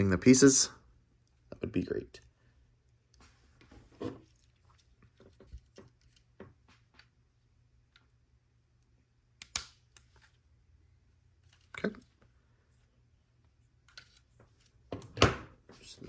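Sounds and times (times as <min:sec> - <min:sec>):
plastic pieces snapping together: 0:09.4 - 0:10.1.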